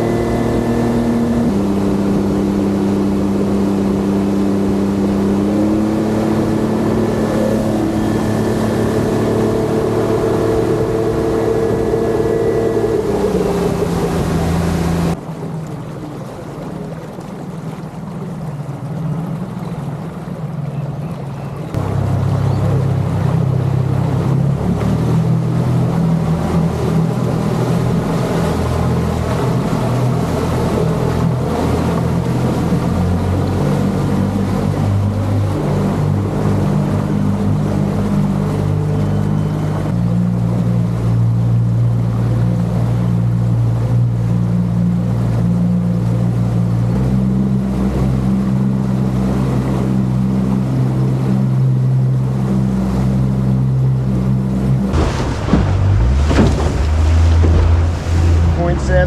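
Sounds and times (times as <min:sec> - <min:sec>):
wind on microphone: 0:00.0 - 0:15.2
boat motor running: 0:00.0 - 0:59.0
water rushing past hull: 0:00.0 - 0:59.0.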